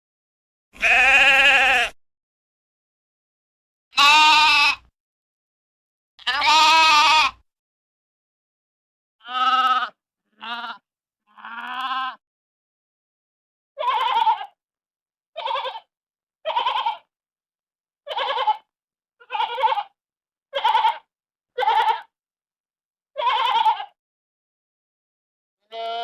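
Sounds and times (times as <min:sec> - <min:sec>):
sheep bleating: 0:00.8 - 0:02.0, 0:03.9 - 0:04.9, 0:06.2 - 0:07.4, 0:09.2 - 0:12.2, 0:13.8 - 0:14.6, 0:15.4 - 0:17.1, 0:18.1 - 0:22.1, 0:23.2 - 0:24.0, 0:25.6 - 0:26.0.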